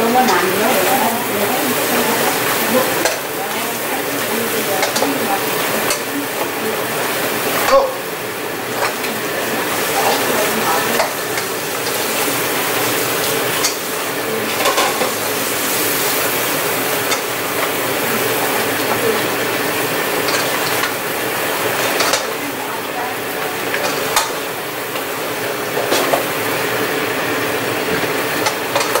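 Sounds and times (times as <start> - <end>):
crab sizzling in a skillet: 0.0 - 29.0
metal utensil clicking on pan: 1.9 - 3.4, 4.1 - 6.6, 8.8 - 9.1, 9.9 - 12.1, 13.2 - 15.3, 16.9 - 17.8, 20.2 - 21.0, 21.7 - 22.4, 23.6 - 25.1, 28.4 - 29.0.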